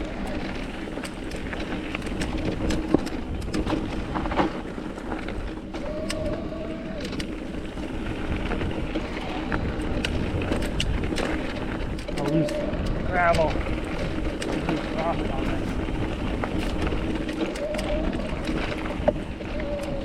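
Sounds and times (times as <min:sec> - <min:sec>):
bike rattling: 0:00.0 - 0:20.0
bike tyres rumbling on gravel: 0:00.0 - 0:20.0.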